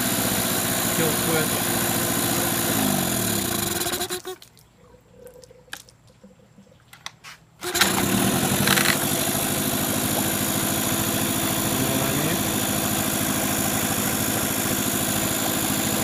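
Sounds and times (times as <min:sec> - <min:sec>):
outboard motor running: 0:00.0 - 0:04.4, 0:07.6 - 0:16.0.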